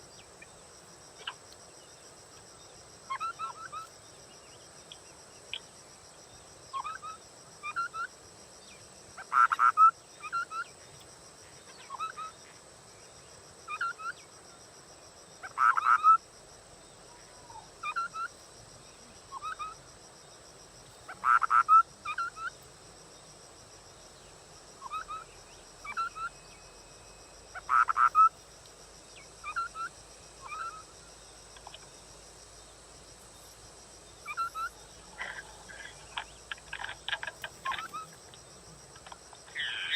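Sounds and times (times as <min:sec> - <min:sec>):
bird whistled calls: 0:39.5 - 0:39.9.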